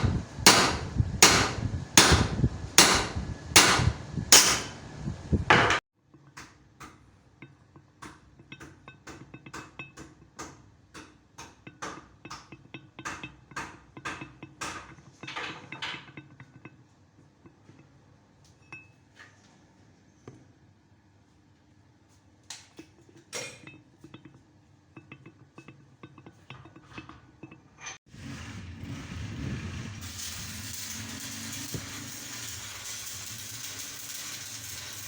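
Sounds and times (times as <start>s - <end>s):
shop machine noise: 0.0s - 5.8s, 27.8s - 35.0s.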